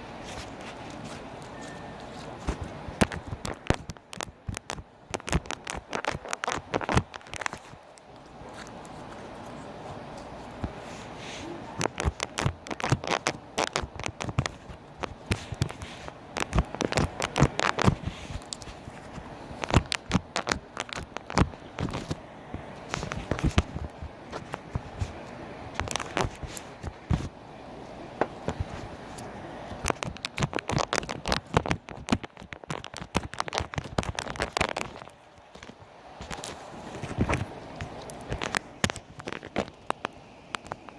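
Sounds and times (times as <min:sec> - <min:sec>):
sharp wet clicks and pops: 0:00.4 - 0:10.8, 0:11.8 - 0:27.3, 0:28.3 - 0:40.9
slime sticky clicks and pops: 0:03.0 - 0:07.8, 0:11.8 - 0:15.8, 0:16.4 - 0:18.6, 0:29.8 - 0:35.0.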